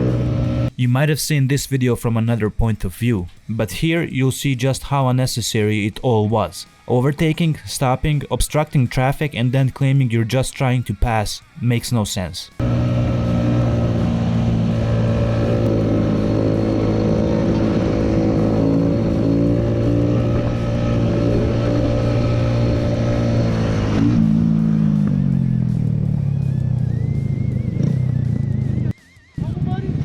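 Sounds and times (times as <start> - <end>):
vehicle engine running: 0.0 - 0.7, 12.6 - 30.0.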